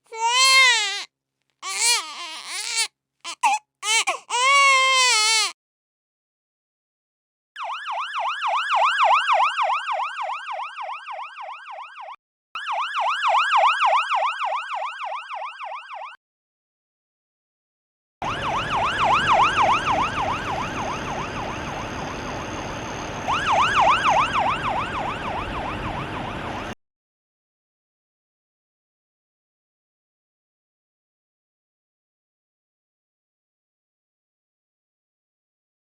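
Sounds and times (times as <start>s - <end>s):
road traffic rumble: 19.7s - 26.7s.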